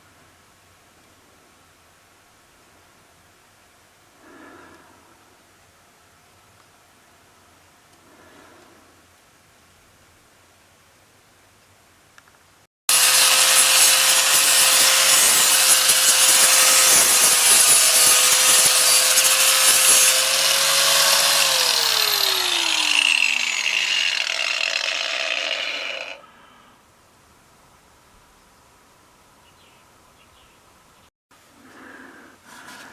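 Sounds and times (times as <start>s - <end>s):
power tool grinding: 12.9s - 26.3s
motor winding down whine: 18.8s - 26.2s.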